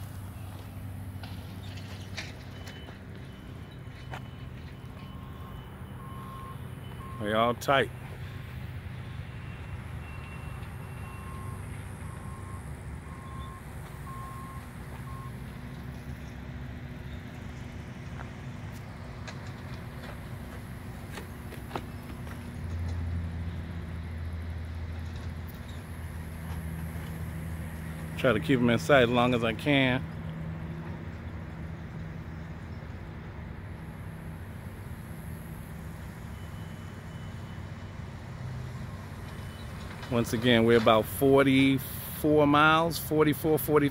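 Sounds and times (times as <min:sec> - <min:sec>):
reversing alarm beeping: 0:00.0 - 0:15.9, 0:33.9 - 0:43.6
low engine rumble: 0:00.0 - 0:43.9.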